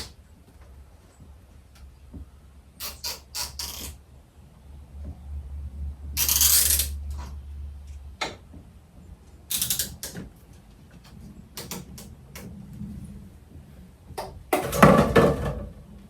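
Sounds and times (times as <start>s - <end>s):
steady low hum: 0.0s - 16.0s
mechanism clicking and ratcheting: 2.8s - 4.0s, 6.2s - 7.3s, 9.5s - 10.2s
sharp clicks and rattles: 6.2s - 8.0s, 9.5s - 12.5s.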